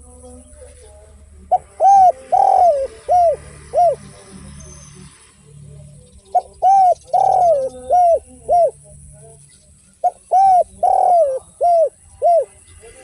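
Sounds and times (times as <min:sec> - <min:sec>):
dove cooing: 0:01.4 - 0:04.6, 0:06.3 - 0:09.1, 0:09.8 - 0:13.0.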